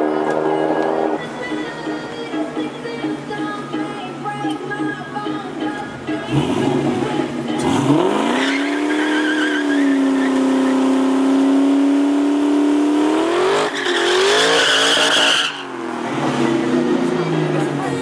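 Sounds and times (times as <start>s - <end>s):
car engine revving: 0.0s - 2.6s, 6.1s - 18.0s
tyres squealing: 8.2s - 10.5s, 13.6s - 15.7s.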